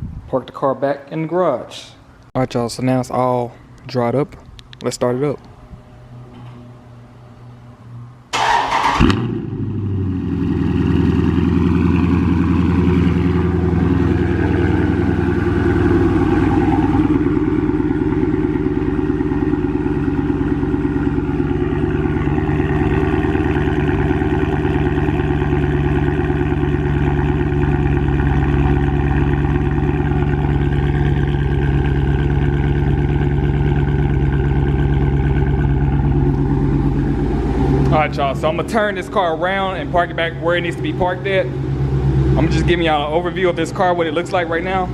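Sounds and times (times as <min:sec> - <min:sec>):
car engine starter cranking: 0:08.3 - 0:09.4
car engine rumbling idle: 0:08.3 - 0:44.9.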